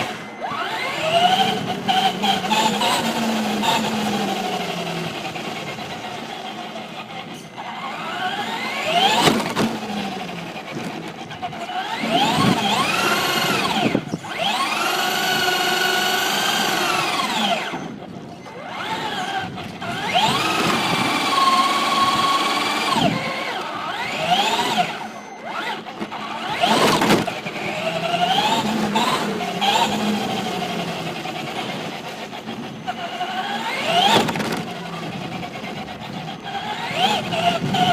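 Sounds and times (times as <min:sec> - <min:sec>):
rc truck motor whining: 0:00.0 - 0:37.9.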